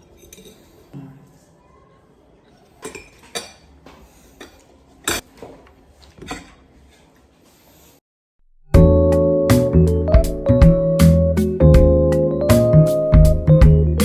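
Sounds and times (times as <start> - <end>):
cutlery clinking on a plate: 0.0 - 0.9, 2.6 - 5.6, 6.2 - 7.1
piano-like background music: 8.8 - 14.0.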